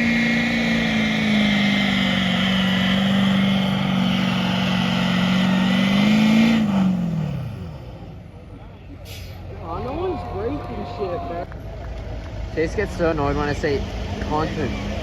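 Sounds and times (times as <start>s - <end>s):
truck engine high-revving drone: 0.0s - 8.4s, 13.2s - 15.0s.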